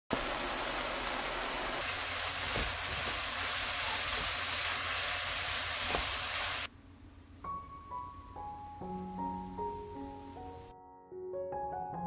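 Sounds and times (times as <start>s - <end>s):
food sizzling in frying pan: 0.1s - 6.7s.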